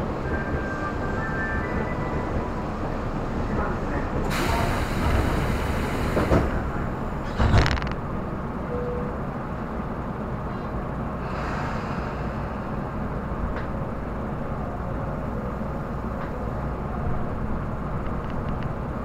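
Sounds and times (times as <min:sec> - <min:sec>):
electric train rumbling on rails: 0:00.0 - 0:19.0
hiss: 0:04.3 - 0:06.4.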